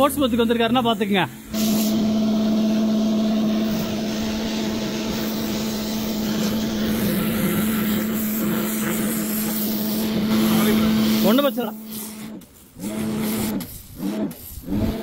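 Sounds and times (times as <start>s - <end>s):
pressure washer humming: 0.0s - 15.0s
water jet spraying paving: 0.0s - 15.0s.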